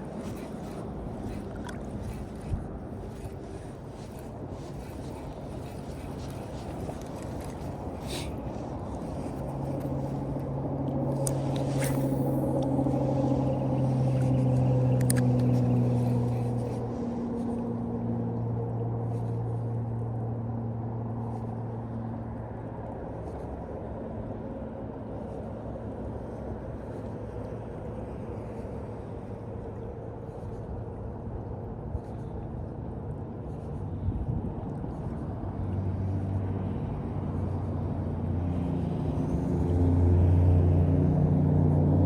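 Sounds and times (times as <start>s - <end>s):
vehicle engine droning: 0.0s - 22.0s, 35.6s - 42.0s.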